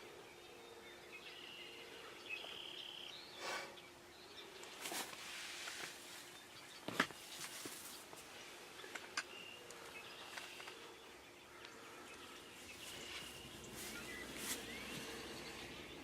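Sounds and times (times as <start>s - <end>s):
bird chirps and calls: 6.3s - 16.0s.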